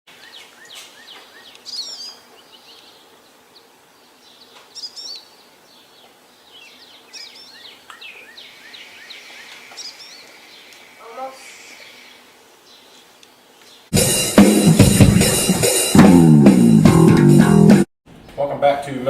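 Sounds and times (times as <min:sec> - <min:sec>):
songbirds chirping and singing: 0:00.1 - 0:13.9.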